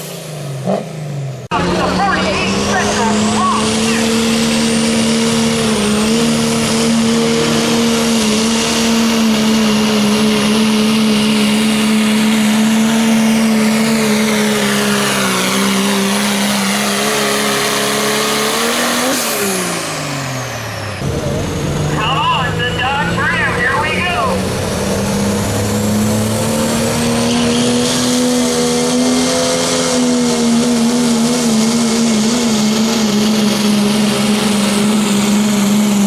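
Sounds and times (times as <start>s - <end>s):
diesel truck engine at full throttle: 0.0s - 36.0s
high whine: 19.6s - 28.6s.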